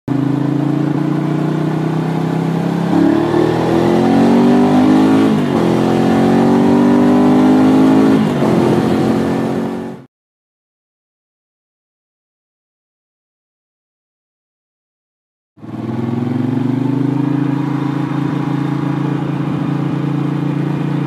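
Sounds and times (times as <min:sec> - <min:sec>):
motorcycle engine revving through gears: 0:00.1 - 0:10.1, 0:15.6 - 0:21.0.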